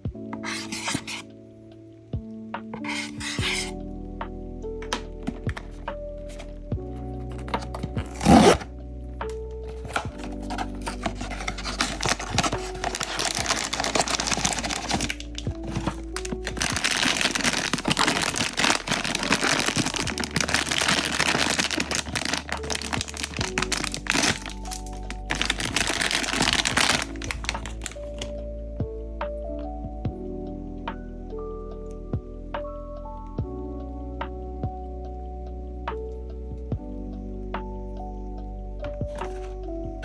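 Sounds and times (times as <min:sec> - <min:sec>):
background music: 0:00.0 - 0:40.0
packaging crinkling and tearing: 0:00.4 - 0:01.2, 0:02.8 - 0:03.7, 0:07.2 - 0:08.7, 0:09.7 - 0:28.3, 0:39.2 - 0:39.5.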